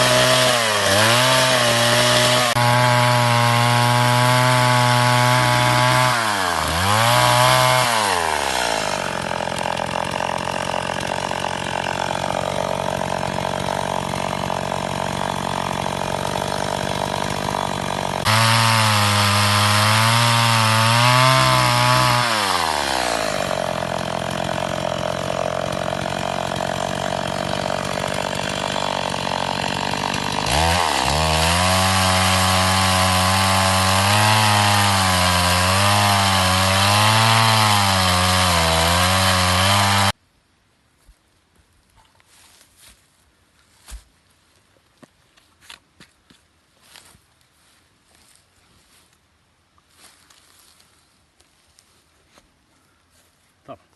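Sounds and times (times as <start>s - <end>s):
chainsaw cutting wood: 0.0s - 40.2s.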